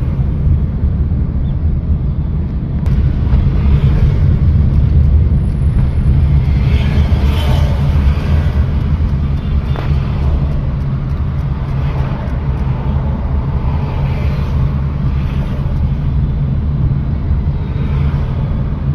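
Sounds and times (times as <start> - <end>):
car engine and road rumble: 0.0 - 18.9.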